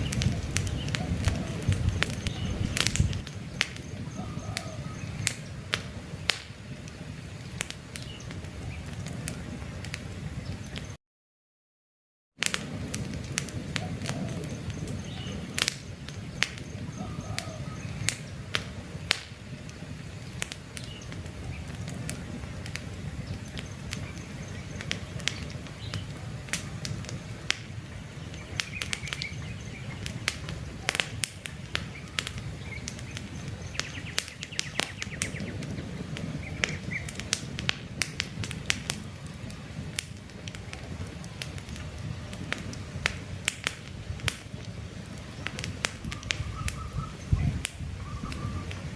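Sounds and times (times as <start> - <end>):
campfire crackling and popping: 0.0 - 11.0, 12.4 - 48.9
faint bird chirps: 3.7 - 5.5, 16.3 - 18.4, 45.2 - 48.9.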